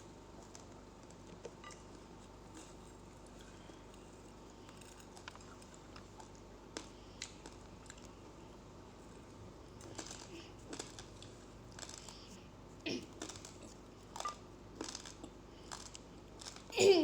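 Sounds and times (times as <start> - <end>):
rice grains crunched between teeth: 9.8 - 12.3, 13.1 - 16.7.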